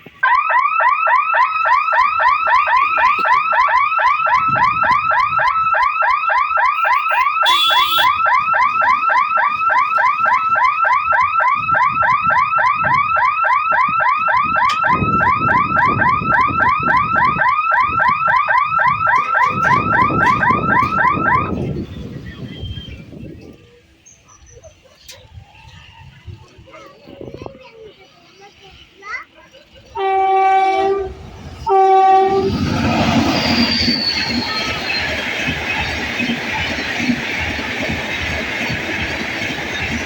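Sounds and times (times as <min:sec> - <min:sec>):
electronic warning hooter whooping: 0:00.3 - 0:23.1
low wind gusts: 0:08.2 - 0:29.0, 0:29.6 - 0:40.0.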